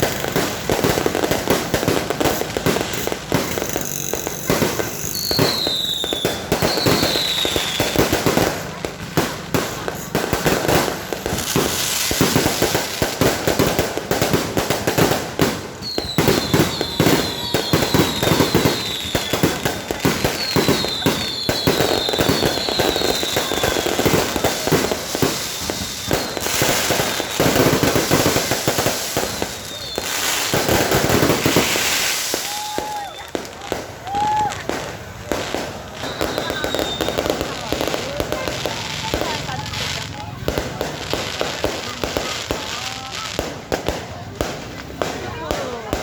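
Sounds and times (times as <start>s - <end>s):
falling firework whistles: 0.0s - 8.7s, 14.8s - 39.4s
fireworks bangs and crackles: 0.0s - 46.0s.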